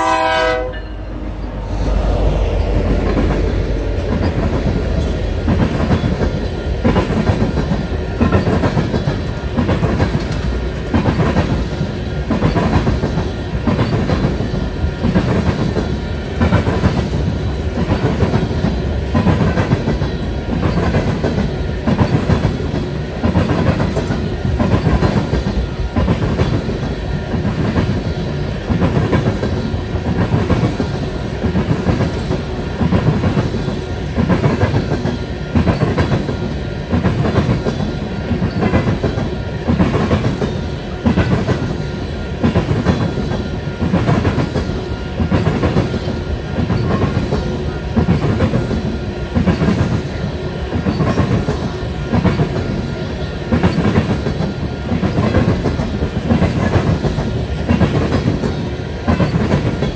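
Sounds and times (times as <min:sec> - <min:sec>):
train rumble: 0:00.0 - 0:59.9
wheels clickety-clack on rail joints: 0:01.4 - 0:59.9.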